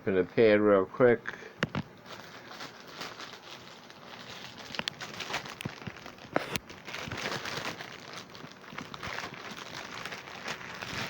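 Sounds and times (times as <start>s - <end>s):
plastic packaging crinkling: 1.6s - 11.0s.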